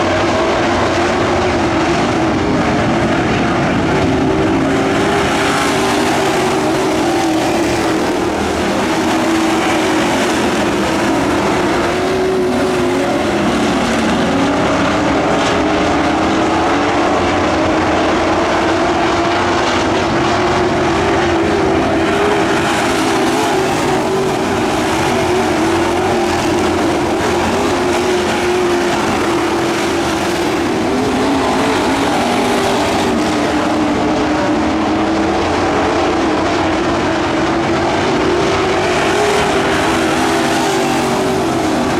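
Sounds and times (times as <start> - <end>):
race truck engines: 0.0 - 41.9.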